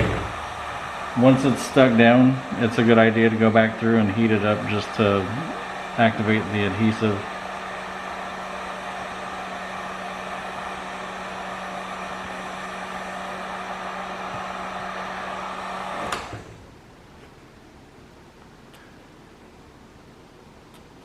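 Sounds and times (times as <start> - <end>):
heat gun blowing: 0.0 - 16.6.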